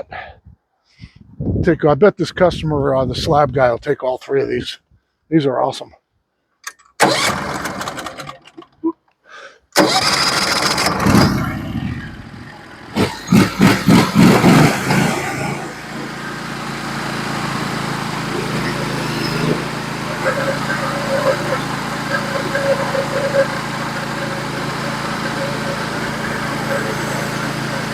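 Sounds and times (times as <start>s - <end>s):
engine cranking and starting: 6.6s - 8.8s, 9.8s - 27.9s.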